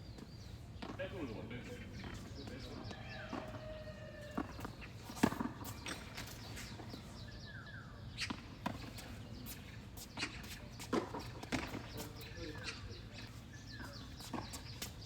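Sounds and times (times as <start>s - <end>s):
tennis balls bouncing on court: 0.1s - 7.2s, 8.1s - 15.0s
tennis balls struck with rackets: 4.3s - 7.1s, 8.1s - 15.0s.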